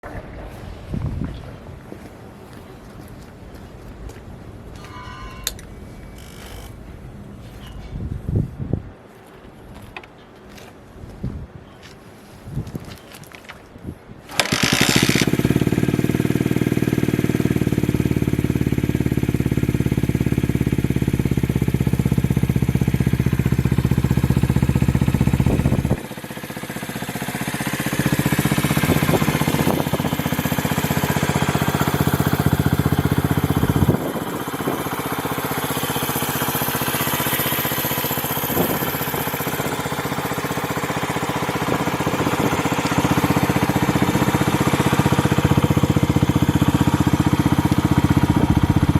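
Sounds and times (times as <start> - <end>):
small motorcycle engine idling: 14.3 - 48.9.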